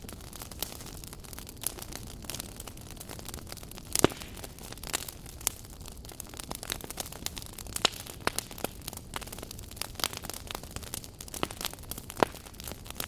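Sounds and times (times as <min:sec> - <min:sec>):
low steady fire hiss: 0:00.0 - 0:13.0
wood fire crackling and popping: 0:00.0 - 0:13.0.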